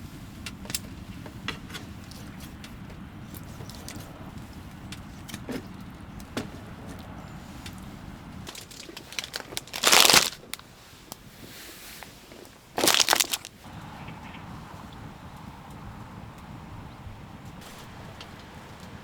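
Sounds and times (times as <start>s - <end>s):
crinkling crunching noise: 1.7s - 13.7s
handling clicks and knocks: 8.5s - 10.6s.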